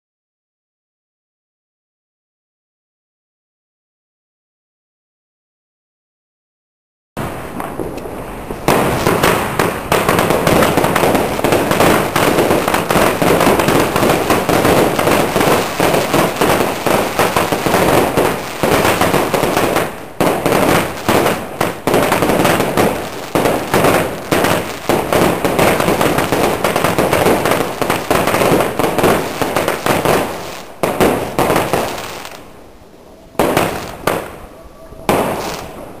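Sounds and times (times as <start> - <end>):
fireworks bangs and crackles: 7.2 - 32.6, 33.4 - 36.0.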